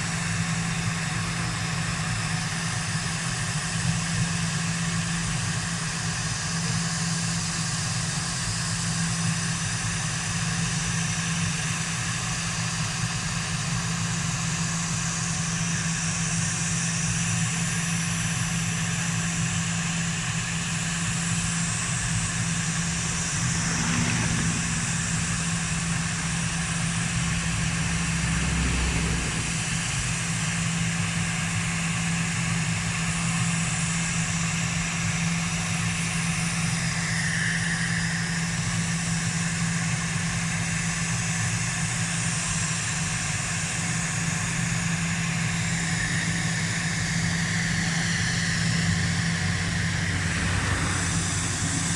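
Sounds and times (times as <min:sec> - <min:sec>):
aircraft engines humming: 0:04.8 - 0:32.9, 0:44.6 - 0:51.9.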